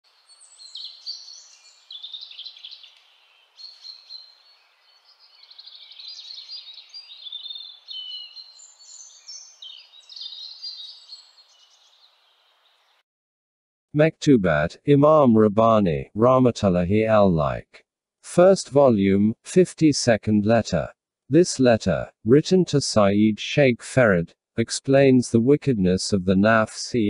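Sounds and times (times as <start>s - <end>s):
birds singing chirps and trills: 0.1s - 13.0s.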